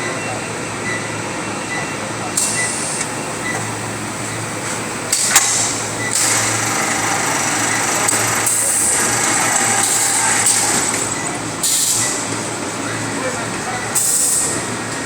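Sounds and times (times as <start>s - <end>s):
bagging machine running: 2.4s - 15.0s.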